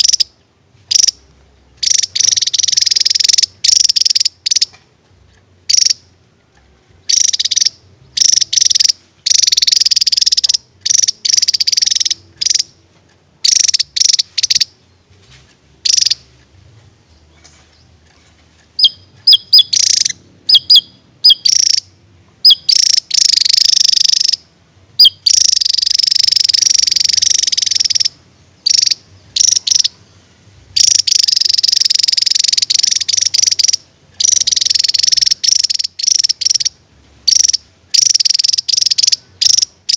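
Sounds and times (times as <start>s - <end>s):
bird buzzy trills: 0.0s - 39.9s
bird sharp descending chirps: 18.8s - 23.5s.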